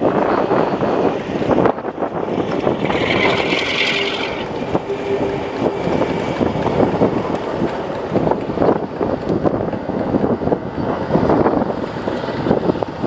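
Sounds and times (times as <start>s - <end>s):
wind buffeting microphone: 0.0s - 13.0s
train wheels clattering: 0.8s - 13.0s
high wheel squeal: 2.8s - 7.3s.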